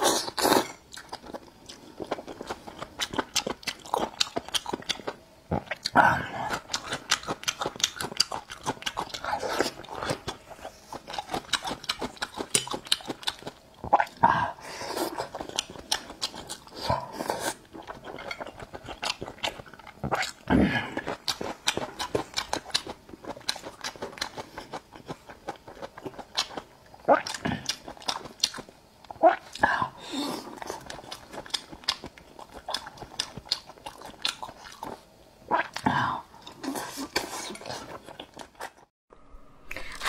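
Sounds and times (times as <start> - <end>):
wet chewing and lip smacking: 0.9 - 14.1.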